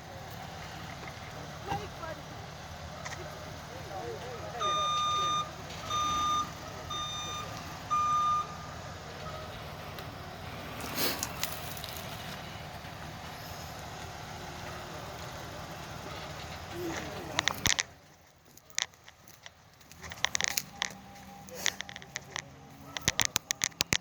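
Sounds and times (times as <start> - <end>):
truck backup alarm beeping: 0.0 - 17.7, 19.2 - 24.0
low engine rumble: 0.0 - 24.0.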